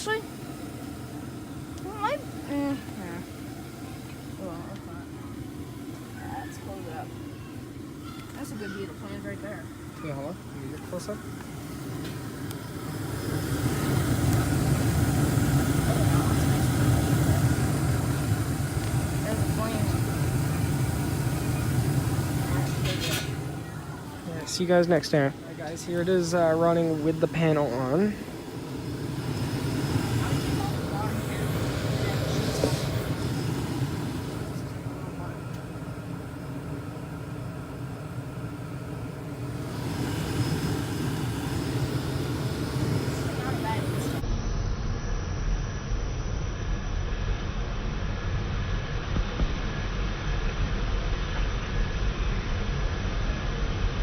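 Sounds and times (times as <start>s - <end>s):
gas furnace rumbling: 0.0s - 44.3s.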